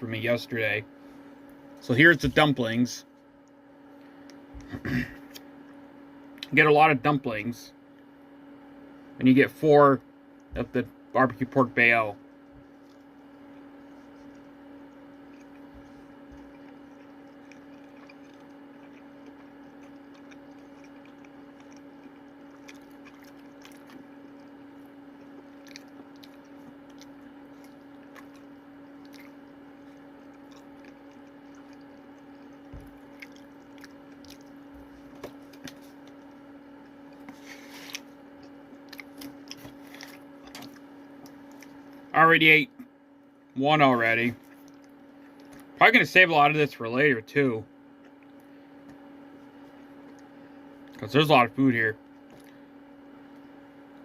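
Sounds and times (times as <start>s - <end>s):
low electrical hum: 0.0s - 54.0s
person chewing: 12.3s - 42.1s, 44.4s - 45.8s, 48.0s - 51.0s, 52.0s - 52.6s.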